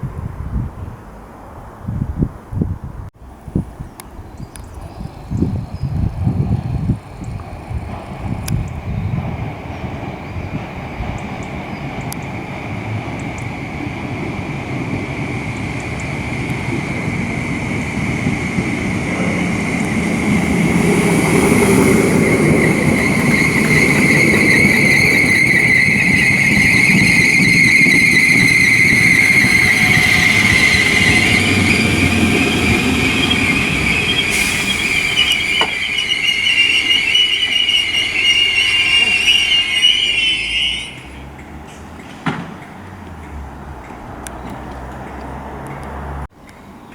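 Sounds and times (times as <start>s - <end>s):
electric train running: 6.0s - 41.2s
wheels squealing: 9.6s - 42.2s.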